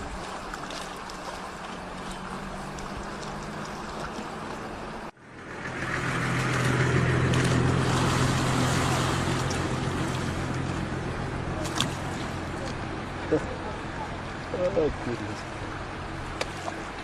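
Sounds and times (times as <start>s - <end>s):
rushing wind or water: 0.0s - 17.0s.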